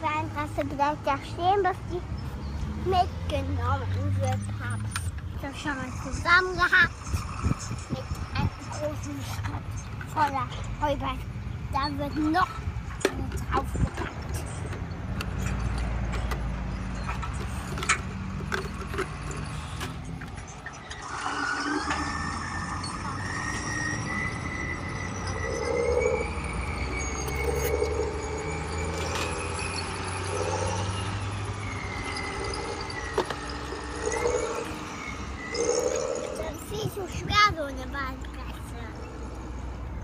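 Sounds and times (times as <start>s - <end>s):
toy electric motor whining: 13.5s - 37.1s.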